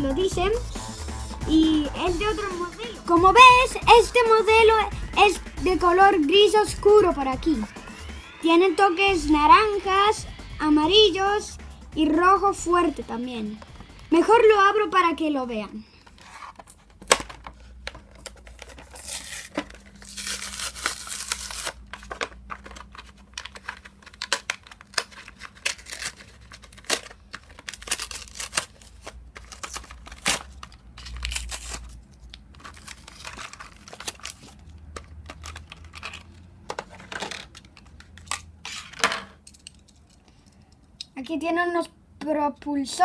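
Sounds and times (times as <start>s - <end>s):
cardboard and plastic packaging tearing: 16.2s - 39.0s.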